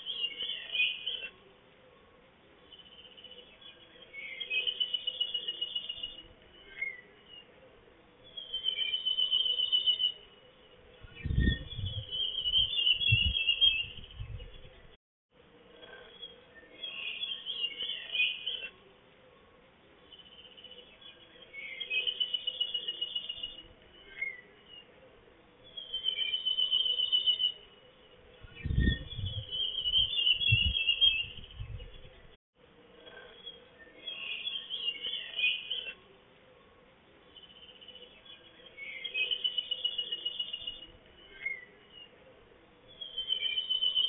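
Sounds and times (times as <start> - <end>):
songbird trilling: 42.9 - 44.0.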